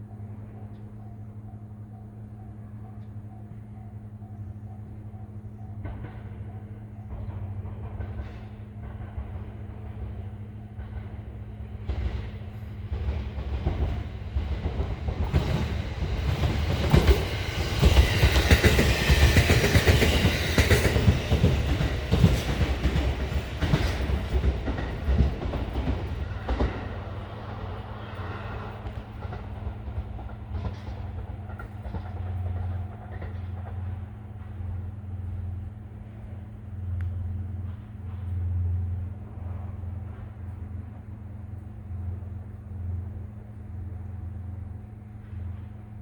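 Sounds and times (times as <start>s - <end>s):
train wheels clattering over rail joints: 7.1s - 34.8s.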